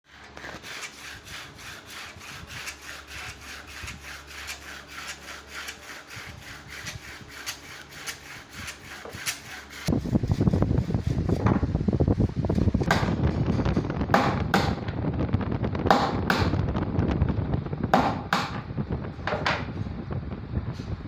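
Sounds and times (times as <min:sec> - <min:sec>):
hand saw cutting wood: 0:00.1 - 0:11.4.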